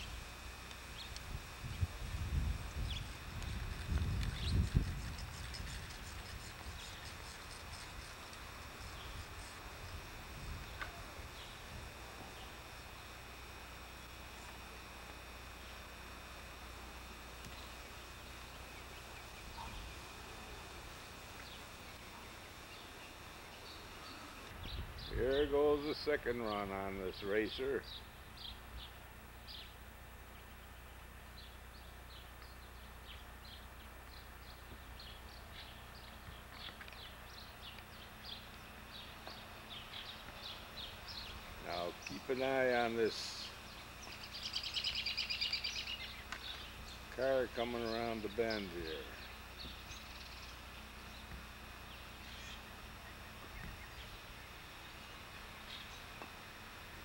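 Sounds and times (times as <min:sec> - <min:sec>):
birds chirping: 0:00.0 - 0:02.0, 0:02.6 - 0:56.8
low steady hum: 0:00.0 - 0:57.0
faint bird chirps: 0:43.3 - 0:47.1.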